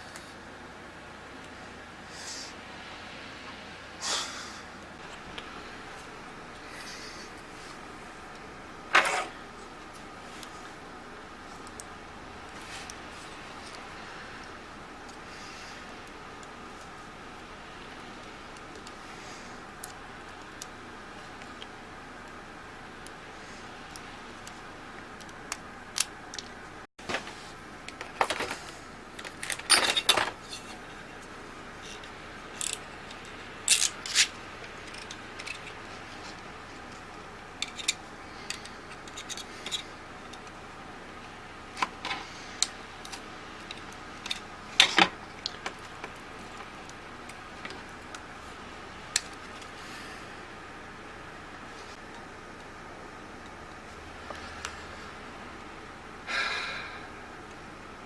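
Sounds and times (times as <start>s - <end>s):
steady hiss: 0.0s - 58.0s
clicks of small tools and parts: 31.8s - 37.0s, 37.6s - 40.6s.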